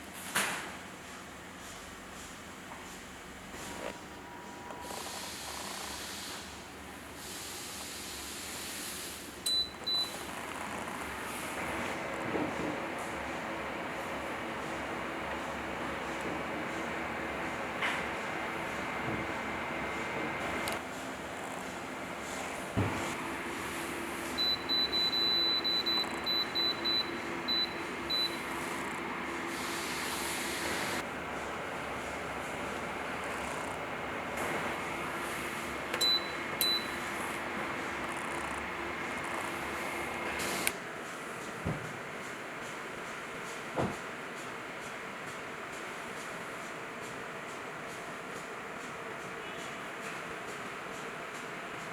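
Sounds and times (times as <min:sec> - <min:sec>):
electric heater fan blowing: 0:00.0 - 0:51.9
steady hiss: 0:28.4 - 0:32.9.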